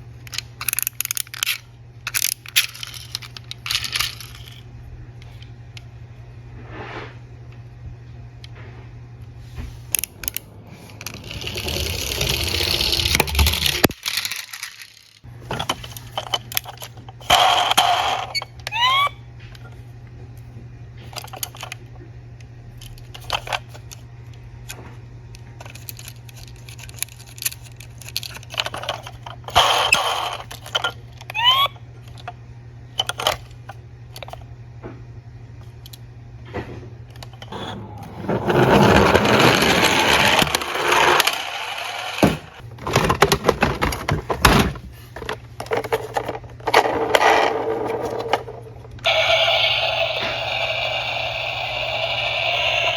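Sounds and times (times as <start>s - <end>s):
toy cars clicking and clattering: 0.2s - 4.6s, 10.0s - 18.4s, 25.6s - 32.3s, 38.5s - 44.2s, 45.2s - 52.9s
toy cars rolling down slope: 11.0s - 15.3s, 16.2s - 19.1s, 26.8s - 31.7s, 37.5s - 43.0s, 46.2s - 52.9s.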